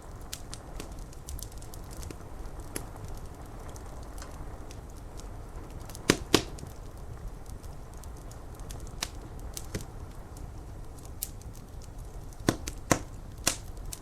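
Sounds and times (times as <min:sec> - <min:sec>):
wood fire crackling: 0:00.0 - 0:14.0
sharp loud pops: 0:06.1 - 0:06.6.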